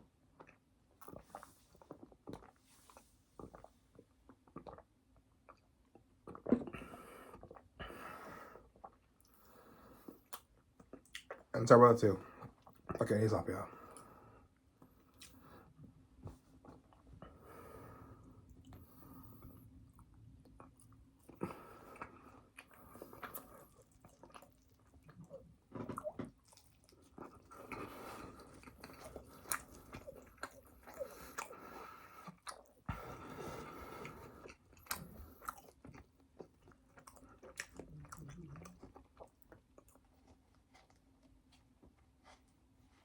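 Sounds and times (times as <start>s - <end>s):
chewing and biting food: 10.1s - 11.5s, 18.6s - 42.5s.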